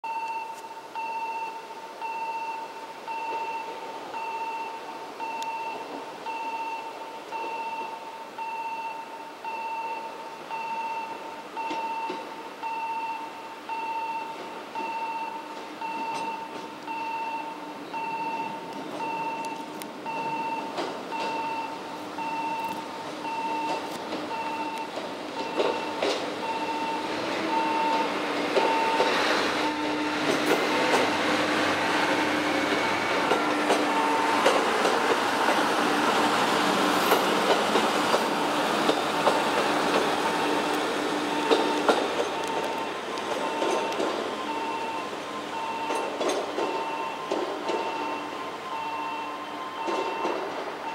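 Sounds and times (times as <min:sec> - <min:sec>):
electronic warning beep: 0:00.0 - 0:29.9, 0:33.9 - 0:34.5, 0:41.3 - 0:50.9
diesel railcar hum: 0:00.1 - 0:50.9
wheels clicking over rail joints: 0:17.9 - 0:22.8, 0:23.5 - 0:48.3, 0:49.8 - 0:50.8.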